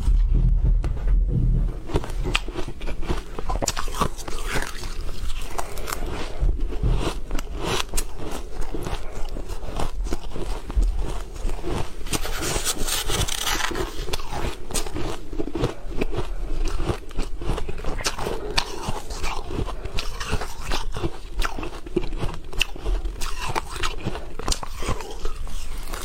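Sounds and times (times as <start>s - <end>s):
person crunching ice: 1.8s - 26.0s.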